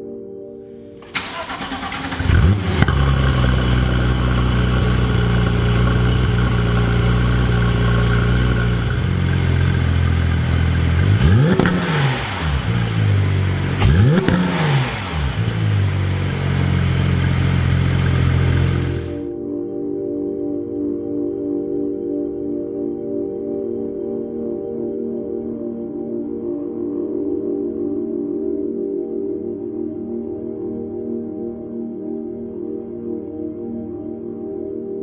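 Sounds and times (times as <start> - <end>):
car engine starting and idling: 1.0 - 19.2
engine throttle blips: 1.0 - 19.2.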